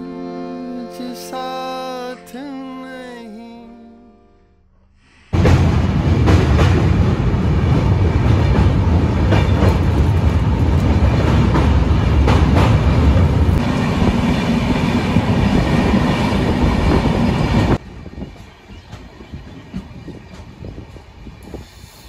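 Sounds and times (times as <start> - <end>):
train wheels rumbling on rails: 5.4 - 22.0.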